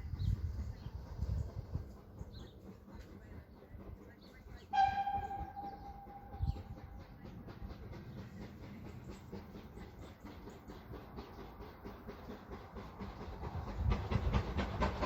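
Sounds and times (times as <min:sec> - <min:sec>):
steam engine exhaust beats: 0:00.0 - 0:15.0
steam locomotive whistle: 0:04.7 - 0:06.8.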